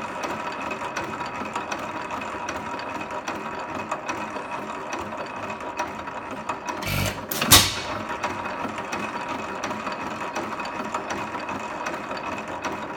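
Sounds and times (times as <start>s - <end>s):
engine firing bang: 6.8s - 8.2s.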